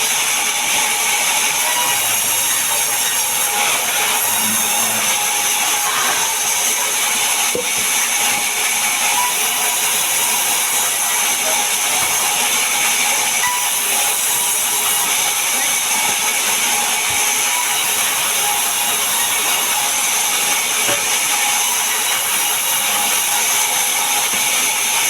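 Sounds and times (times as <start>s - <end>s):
power saw cutting wood: 0.0s - 25.0s.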